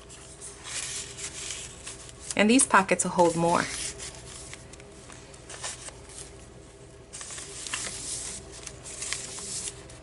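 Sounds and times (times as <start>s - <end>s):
paper and card rustling: 0.0s - 10.0s.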